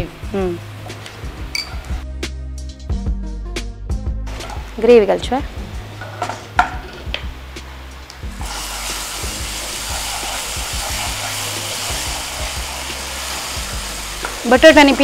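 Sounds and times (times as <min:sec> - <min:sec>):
paste sizzling in hot oil: 0:08.3 - 0:15.0.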